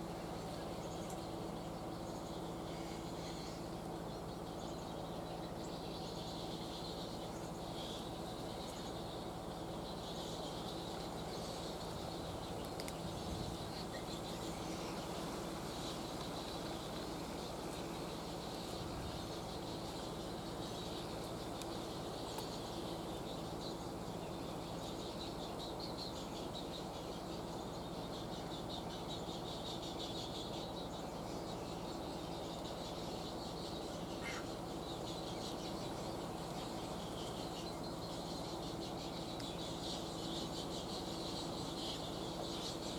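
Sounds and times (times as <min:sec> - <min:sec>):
constant hiss: 0:00.0 - 0:42.9
high chirring insects: 0:01.1 - 0:42.9
faint bird calls: 0:33.3 - 0:36.6.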